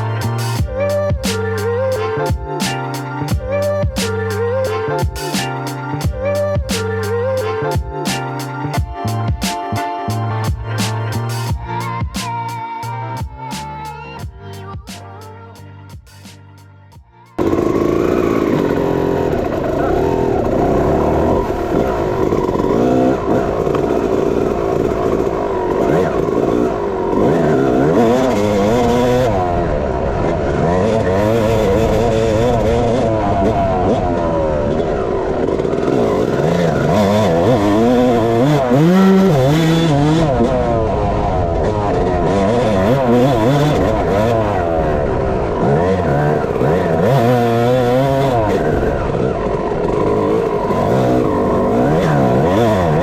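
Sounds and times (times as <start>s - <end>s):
dirt bike engine revving: 17.4s - 53.0s.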